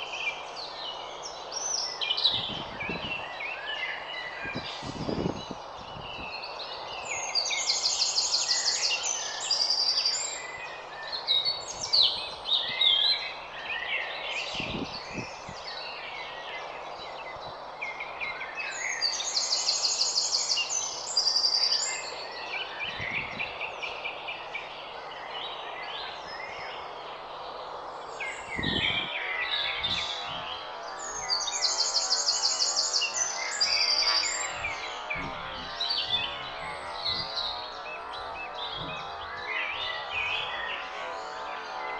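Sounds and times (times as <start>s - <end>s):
birds chirping: 0.0s - 41.9s
songbird trilling: 31.1s - 40.8s.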